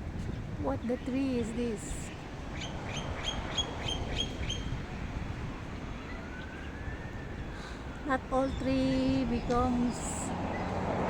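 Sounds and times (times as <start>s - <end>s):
outdoor background noise: 0.0s - 11.0s
birds calling sharply: 0.3s - 4.8s.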